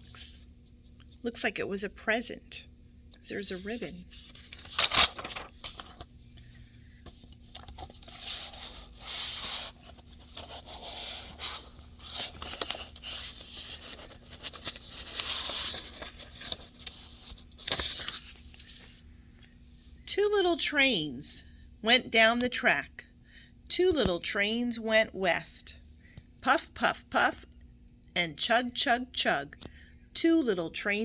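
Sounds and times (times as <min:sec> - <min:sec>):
paper pages rustling: 0:03.4 - 0:19.0.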